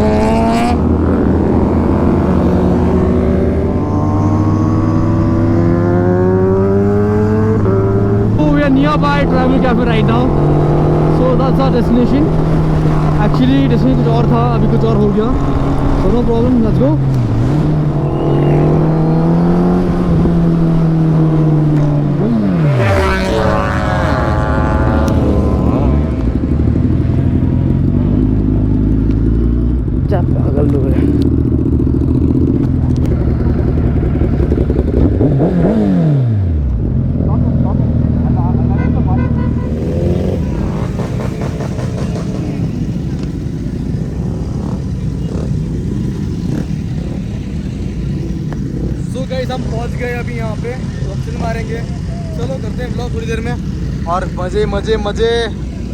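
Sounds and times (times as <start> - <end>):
low wind rumble: 0.0 - 55.9
motorcycle engine revving: 0.0 - 55.9.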